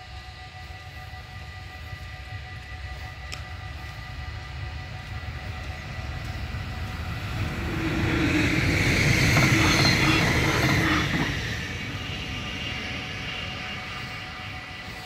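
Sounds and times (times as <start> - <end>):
train engine drone: 0.0 - 15.0
train wheel noise: 0.0 - 15.0.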